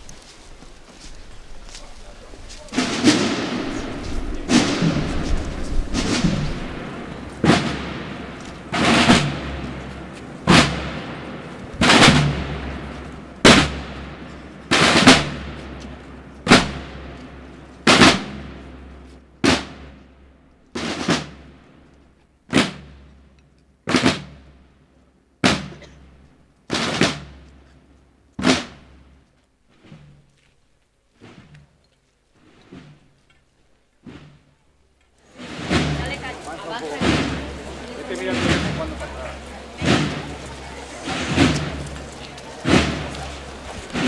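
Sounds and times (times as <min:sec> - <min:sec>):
drum beating slow beat: 0:00.0 - 0:19.0, 0:35.4 - 0:44.0.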